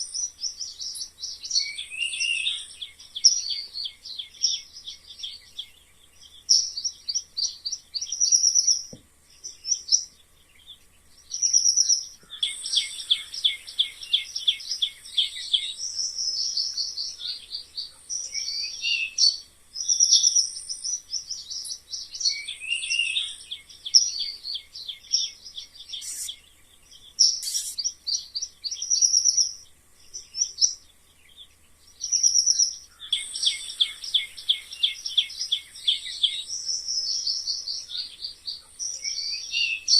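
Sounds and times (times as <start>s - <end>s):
mice squeaking: 26.0s - 26.3s, 27.4s - 27.9s.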